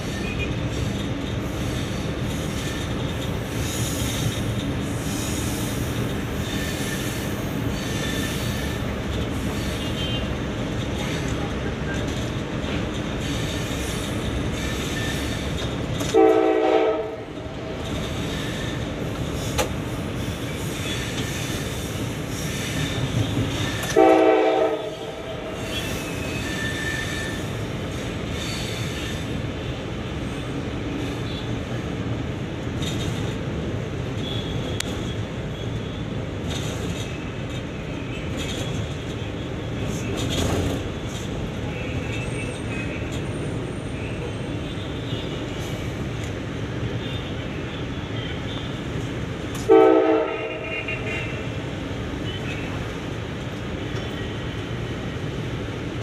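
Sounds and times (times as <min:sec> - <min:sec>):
train rumbling on track: 0:00.0 - 0:56.0
train horn blasts: 0:16.1 - 0:17.4, 0:23.9 - 0:25.6, 0:49.6 - 0:51.5.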